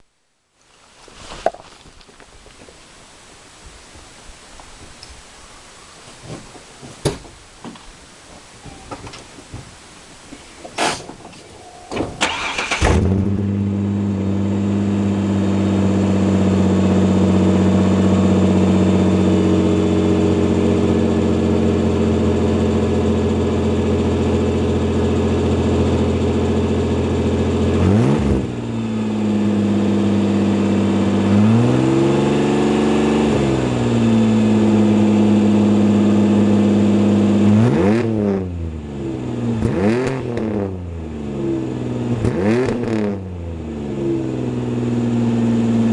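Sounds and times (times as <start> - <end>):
truck engine idling and revving: 11.8 - 45.9.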